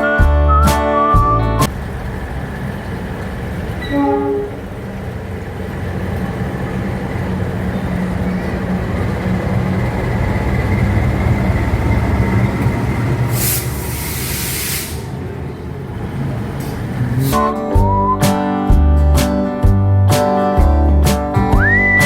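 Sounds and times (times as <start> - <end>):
diesel locomotive rumbling: 0.0 - 22.0
horn-like tone: 3.8 - 4.6.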